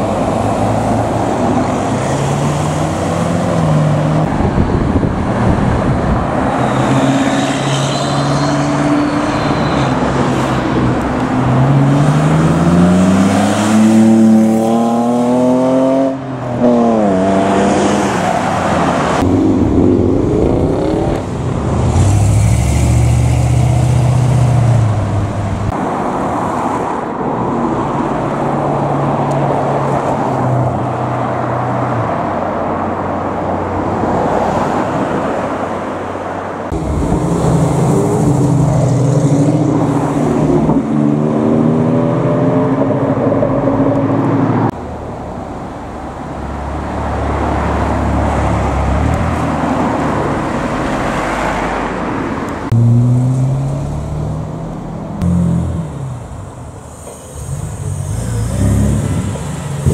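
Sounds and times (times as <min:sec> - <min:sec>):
car engines revving up: 0:00.0 - 0:25.8, 0:36.7 - 0:44.8, 0:46.8 - 0:59.9.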